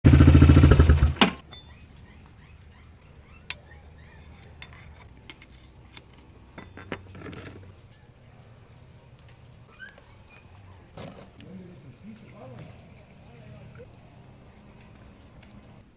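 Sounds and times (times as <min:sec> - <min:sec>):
metal hand tools clinking: 0:03.4 - 0:07.7.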